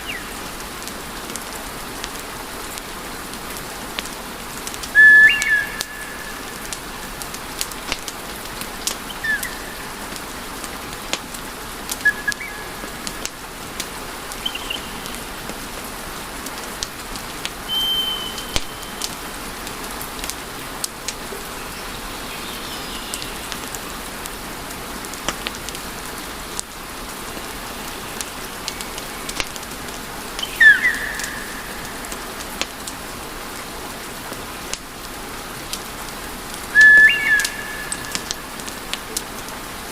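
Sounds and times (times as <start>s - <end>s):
wood fire crackling and hissing: 0.0s - 39.9s
high whistles from burning logs: 4.8s - 10.2s, 11.9s - 15.2s, 17.6s - 19.2s, 30.3s - 33.0s, 36.6s - 39.2s.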